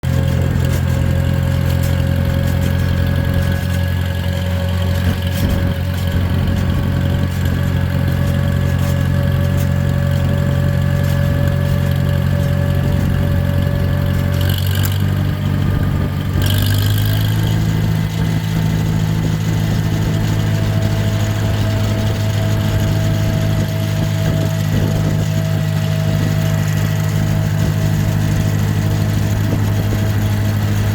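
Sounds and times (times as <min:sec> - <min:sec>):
tractor engine running: 0:00.0 - 0:30.9.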